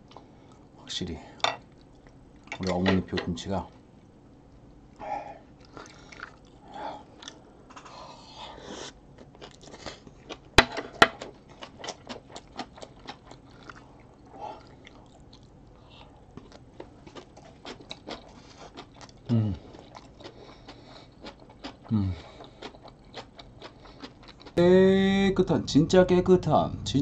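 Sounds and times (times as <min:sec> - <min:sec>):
chewing with wet smacks: 0:04.9 - 0:07.9, 0:09.1 - 0:10.5, 0:11.2 - 0:24.6.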